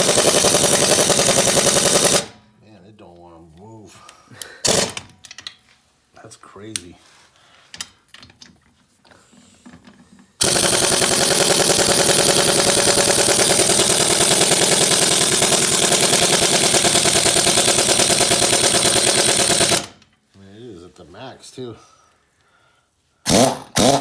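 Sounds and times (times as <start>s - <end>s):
pneumatic impact wrench hammering: 0.0s - 2.4s, 4.6s - 5.4s, 10.4s - 20.0s, 23.3s - 24.0s.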